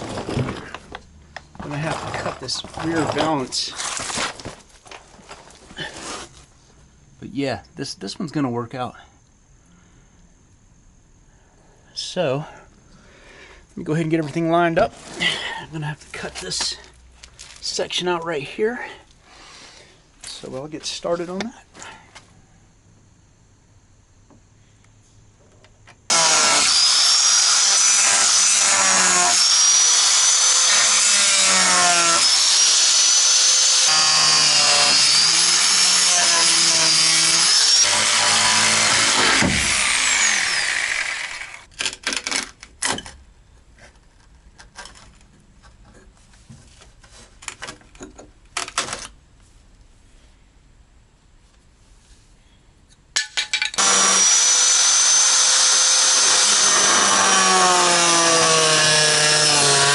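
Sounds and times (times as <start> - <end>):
power cutting tool whining: 26.1 - 41.7, 53.8 - 59.9.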